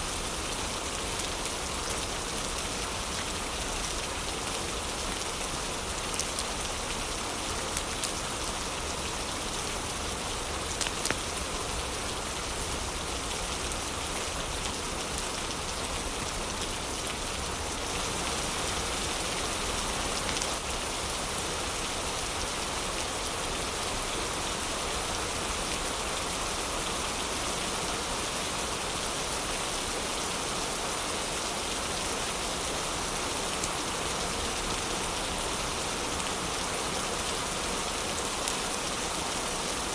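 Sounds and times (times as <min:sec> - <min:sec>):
heavy rain falling: 0:00.0 - 0:39.9
wood fire crackling: 0:06.1 - 0:06.5, 0:10.7 - 0:11.4.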